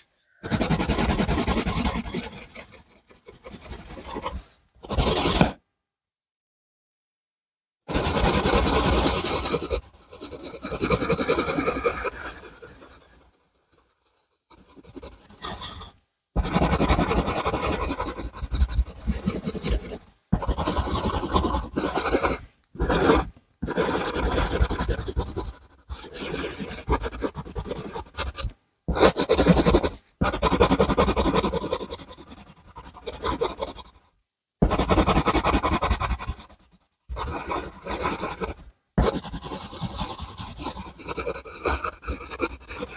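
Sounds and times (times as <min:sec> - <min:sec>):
pencil scratching on paper: 0:00.0 - 0:05.6, 0:07.9 - 0:42.9.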